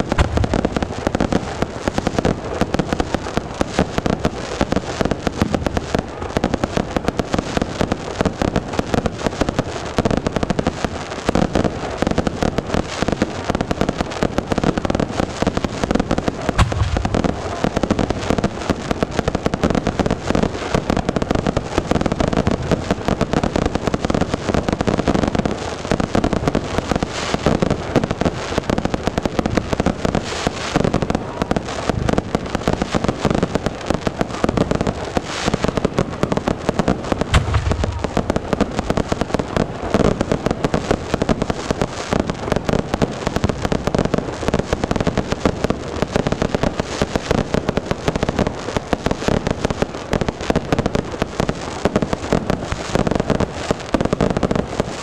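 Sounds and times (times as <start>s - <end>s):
deep firework boom: 0.0s - 1.6s, 16.6s - 18.3s, 37.3s - 39.0s
fireworks crackling pops: 0.0s - 55.0s.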